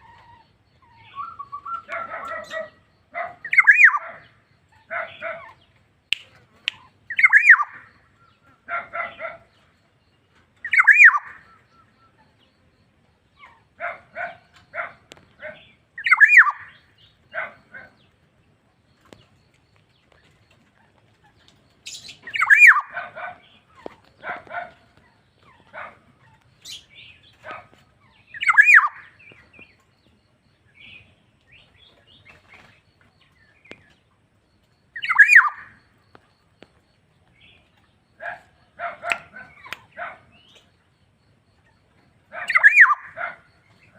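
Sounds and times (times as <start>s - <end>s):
bird calling with downward notes: 0.0s - 2.8s, 3.4s - 8.6s, 10.6s - 12.5s, 16.0s - 16.9s, 20.8s - 23.0s, 28.1s - 29.8s, 35.0s - 35.9s, 42.4s - 43.2s.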